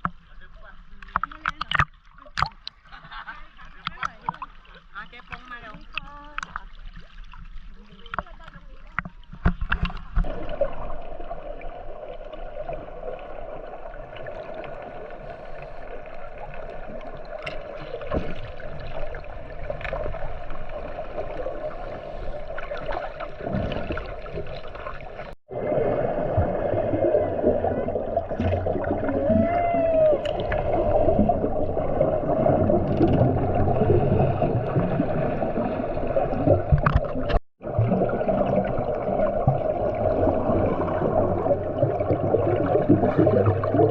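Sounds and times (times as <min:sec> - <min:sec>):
gurgling: 0:25.5 - 0:43.9.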